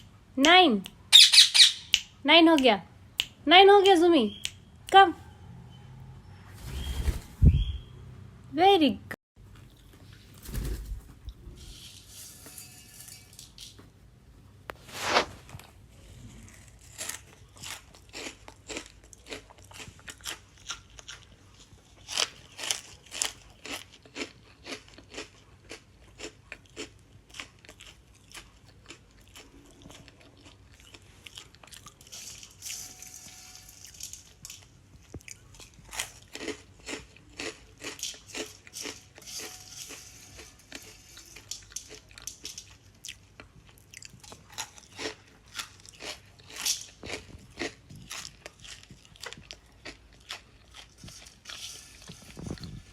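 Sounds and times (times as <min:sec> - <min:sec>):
parrot crunching hard food: 0:15.6 - 0:52.8.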